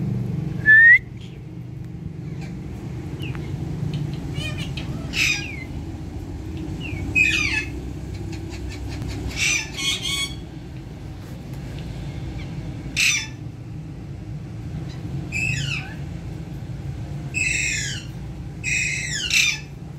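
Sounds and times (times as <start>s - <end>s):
steady low hum: 0.0s - 19.9s
parrots squawking: 2.2s - 2.6s, 3.3s - 5.8s, 6.8s - 10.6s, 12.2s - 13.5s, 14.8s - 16.1s, 17.3s - 19.9s.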